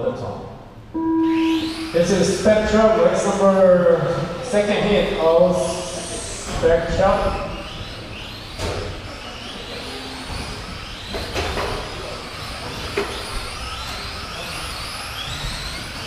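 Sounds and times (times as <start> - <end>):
toy racing truck motors whining: 1.3 - 3.3, 5.1 - 16.0.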